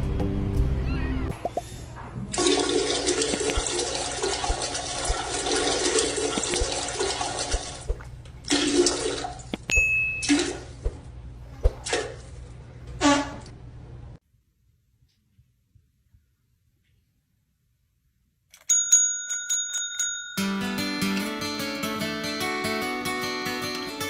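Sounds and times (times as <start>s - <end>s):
rushing water: 2.4s - 8.0s.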